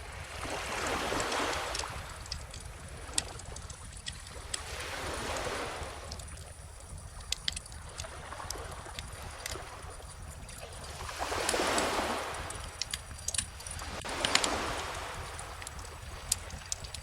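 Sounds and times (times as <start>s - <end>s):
bonfire crackling and popping: 1.2s - 17.0s
ocean waves washing in: 4.0s - 17.0s.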